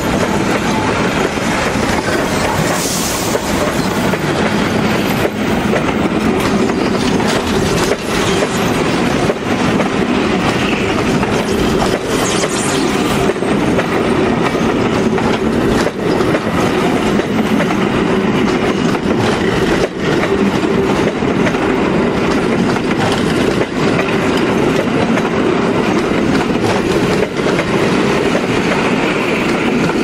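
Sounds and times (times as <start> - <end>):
wheels clacking over rail joints: 0.0 - 12.0
wheels rumbling on rails: 0.0 - 30.0.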